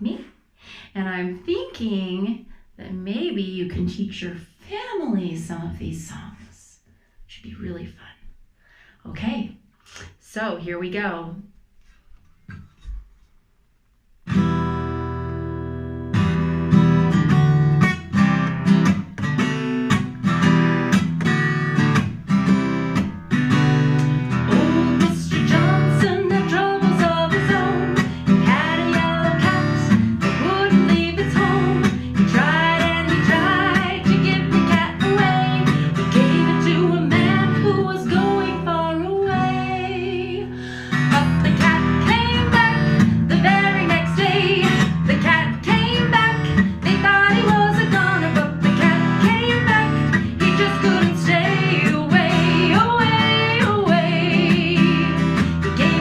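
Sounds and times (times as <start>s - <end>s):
strummed acoustic guitar: 14.2s - 56.0s
guitar melody line: 14.3s - 56.0s.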